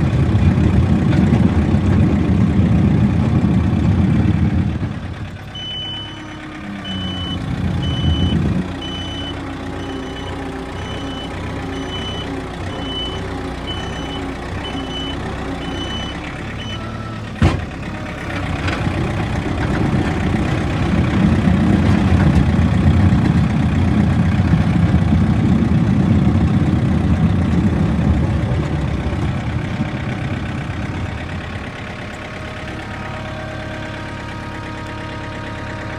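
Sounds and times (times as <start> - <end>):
diesel engine running: 0.0 - 35.9
reverse alarm beeping: 5.6 - 17.2.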